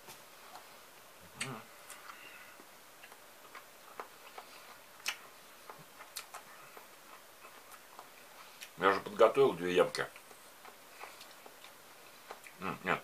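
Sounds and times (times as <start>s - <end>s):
mouth sound: 1.2s - 2.2s, 12.4s - 13.0s
person chewing crunchy cucumber: 3.0s - 8.8s, 10.0s - 12.8s.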